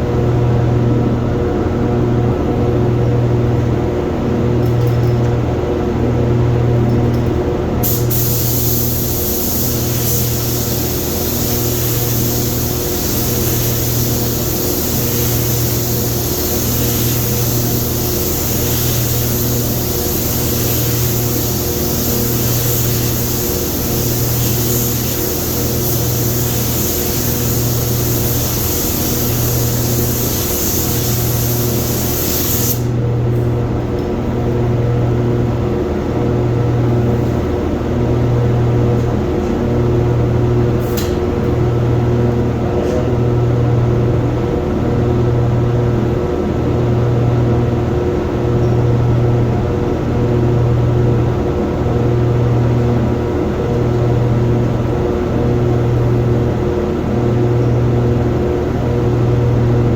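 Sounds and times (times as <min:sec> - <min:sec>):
low machine hum: 0:00.0 - 0:59.9
spray gun hissing: 0:07.8 - 0:32.9.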